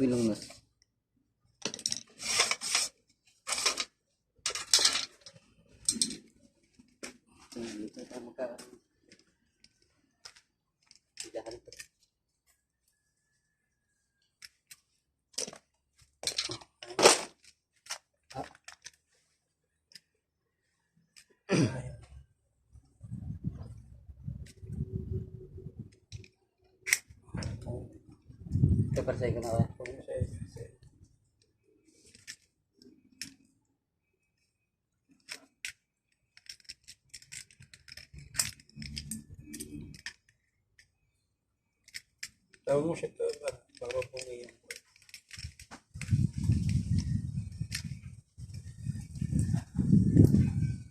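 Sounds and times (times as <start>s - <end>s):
small parts clicking: 1.5s - 7.1s, 9.1s - 12.1s, 14.2s - 19.1s, 19.7s - 20.2s, 25.8s - 27.6s, 31.3s - 33.6s, 34.3s - 48.7s
hand tools scraping: 1.9s - 3.9s.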